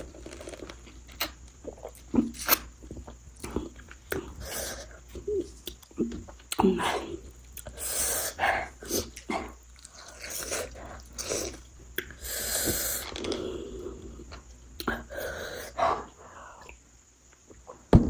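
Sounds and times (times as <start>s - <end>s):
person chewing: 0.0s - 13.0s
hissing breaths and sniffs: 3.6s - 5.3s, 6.7s - 16.8s.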